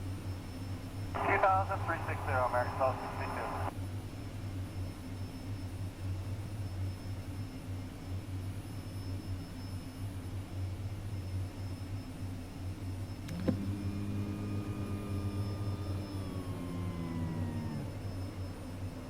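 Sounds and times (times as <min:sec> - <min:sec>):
radio click: 0:01.2 - 0:03.7
radio hum and hiss: 0:01.2 - 0:03.8
held humming tone: 0:13.2 - 0:19.0.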